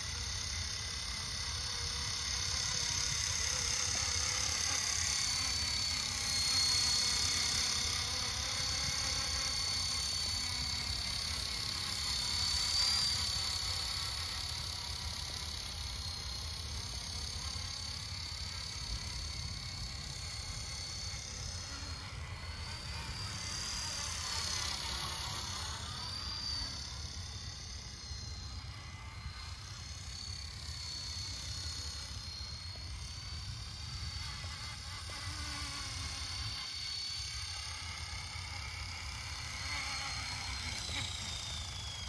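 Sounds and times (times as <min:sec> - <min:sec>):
rc helicopter motor whine: 0:00.0 - 0:42.0.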